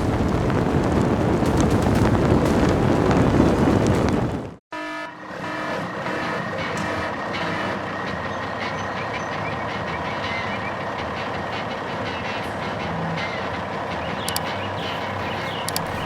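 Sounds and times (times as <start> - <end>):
heavy vehicle engine running: 0.0 - 4.6, 5.2 - 16.0
light ticking: 14.3 - 14.6, 15.6 - 16.0.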